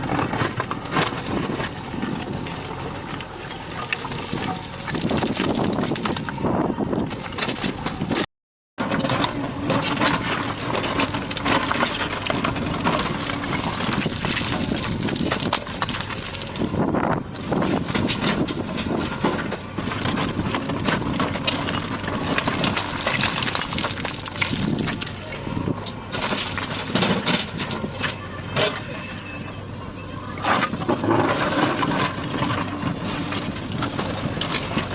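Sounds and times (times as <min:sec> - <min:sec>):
diesel engine running: 0:00.0 - 0:34.9
stones clattering against metal: 0:03.9 - 0:06.4, 0:13.6 - 0:16.8, 0:22.4 - 0:25.5.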